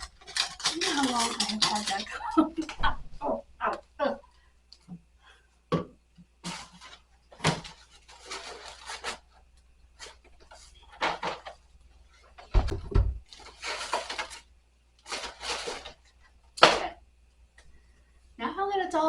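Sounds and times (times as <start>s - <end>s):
rubbing and rustling: 0.0s - 2.7s, 6.3s - 16.5s
objects knocking on wooden shelf: 5.7s - 6.0s.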